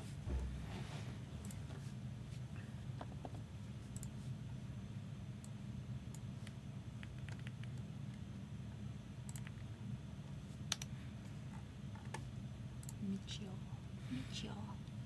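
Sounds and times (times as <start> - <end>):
steady low hum: 0.0 - 15.0
keyboard and mouse clicks: 5.4 - 8.2, 9.3 - 9.7.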